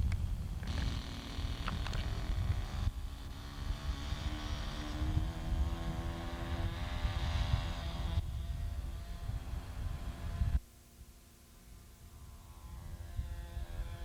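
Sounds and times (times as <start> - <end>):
model airplane engine buzzing: 0.0 - 10.6, 11.6 - 14.0
wind rumbling on microphone: 0.0 - 10.6, 12.1 - 14.0.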